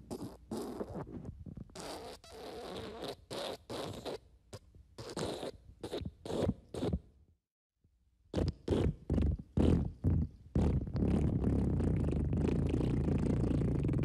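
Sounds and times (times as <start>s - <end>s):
fart sound effects: 8.4s - 14.0s.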